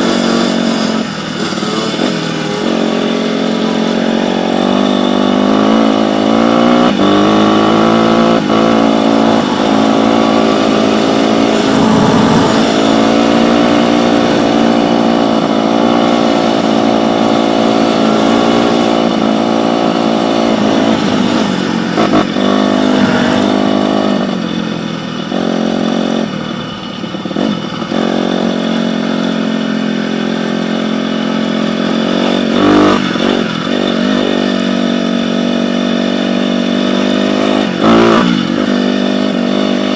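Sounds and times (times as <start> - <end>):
dirt bike engine revving: 0.0 - 26.2.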